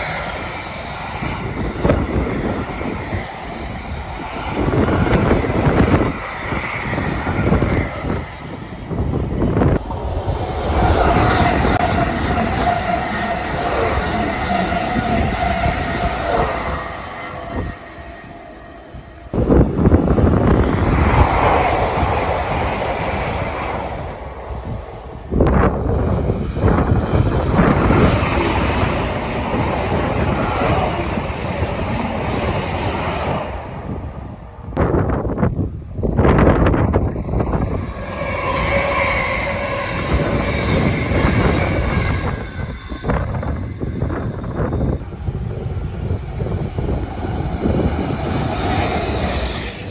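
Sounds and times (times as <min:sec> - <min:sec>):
train passing: 0:00.0 - 0:49.9
wind buffeting microphone: 0:00.0 - 0:49.9
high wheel squeal: 0:09.8 - 0:19.4, 0:36.6 - 0:49.9.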